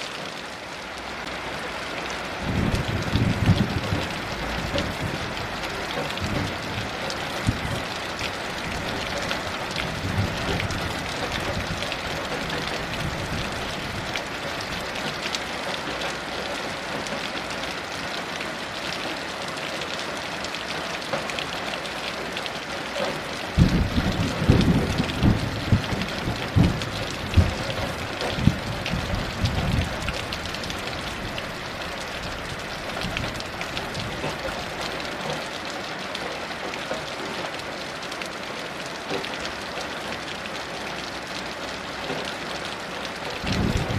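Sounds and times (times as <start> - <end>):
heavy rain falling: 0.0 - 43.9
distant thunder rumbling: 2.4 - 7.9, 8.7 - 14.9, 23.5 - 31.4, 43.4 - 43.9.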